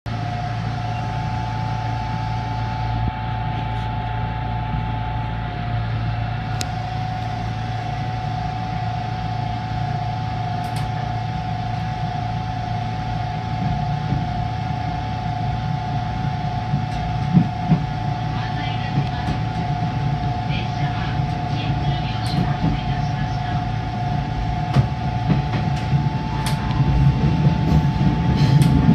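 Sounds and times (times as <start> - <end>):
mid-pitched whine: 0.1 - 28.9
train machinery hum: 0.1 - 28.9.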